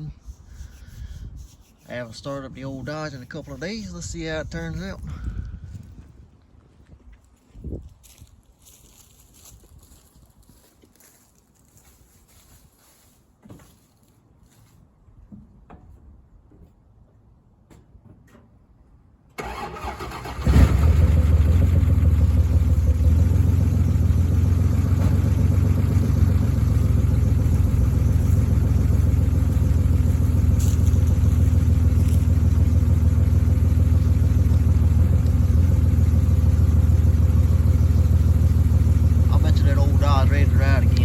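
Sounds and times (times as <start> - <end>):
starter motor cranking: 19.4 - 21.6
car engine idling: 19.4 - 41.0.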